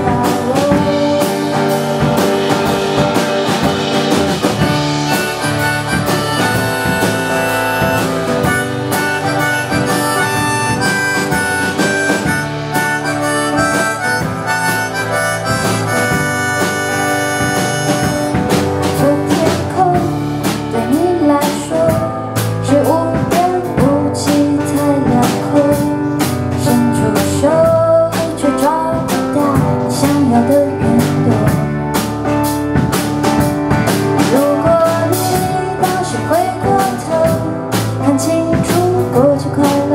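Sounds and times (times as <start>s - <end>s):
guitar and bass: 0.0s - 39.9s
harmonica melody: 0.5s - 19.5s.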